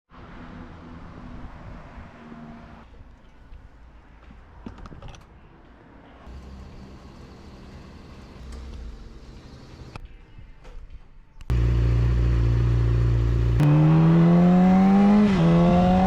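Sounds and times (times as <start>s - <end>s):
motorcycle engine at low revs: 11.5s - 16.0s.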